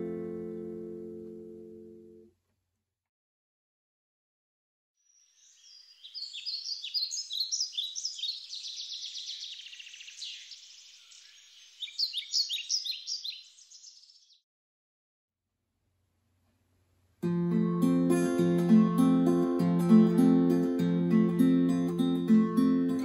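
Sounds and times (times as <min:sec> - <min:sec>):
songbird singing trills: 0:05.0 - 0:14.4.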